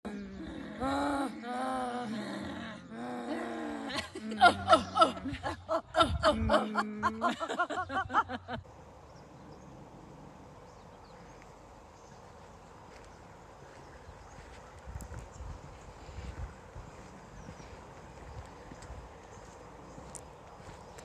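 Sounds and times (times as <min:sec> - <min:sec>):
person snickering and laughing: 0:02.0 - 0:08.6
faint background hiss: 0:04.2 - 0:21.0.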